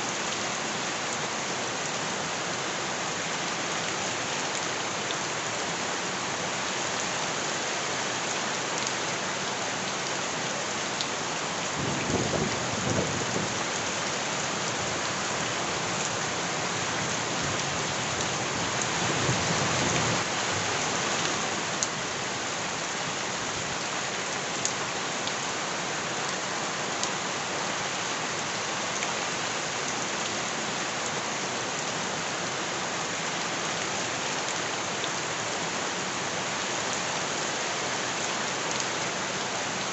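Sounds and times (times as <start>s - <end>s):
heavy rain pattering: 8.2s - 25.4s.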